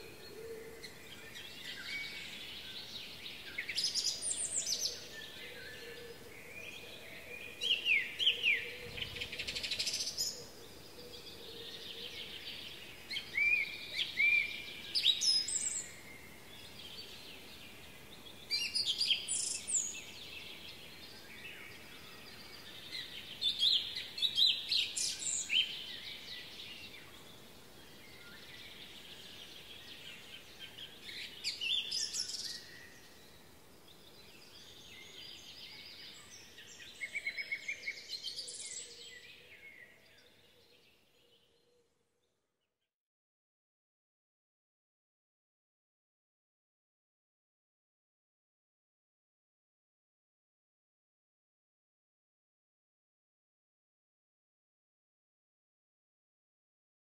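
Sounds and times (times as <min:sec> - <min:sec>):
songbird phrase of chirps and whistles: 0:00.0 - 0:42.5.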